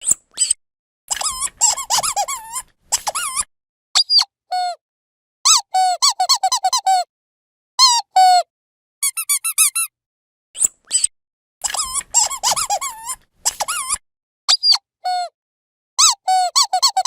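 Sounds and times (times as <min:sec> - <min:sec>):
dog squeaky toy squeaking: 0:00.4 - 0:04.3, 0:05.5 - 0:07.1, 0:09.0 - 0:09.9, 0:10.9 - 0:14.8, 0:16.0 - 0:17.0.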